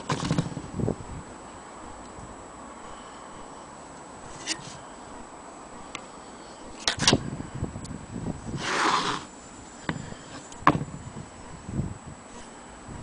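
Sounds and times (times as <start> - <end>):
scraping rustle: 0.0 - 0.7, 4.2 - 4.9, 8.5 - 10.7.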